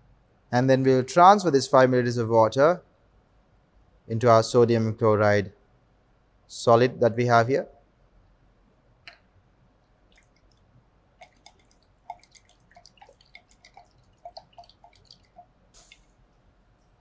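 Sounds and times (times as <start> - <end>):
small drips and ticks: 9.0 - 17.0.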